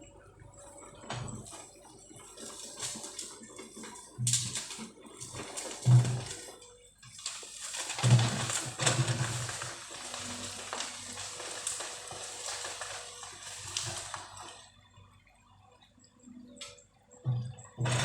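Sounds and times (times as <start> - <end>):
bamboo crackling and rustling: 1.2 - 14.8.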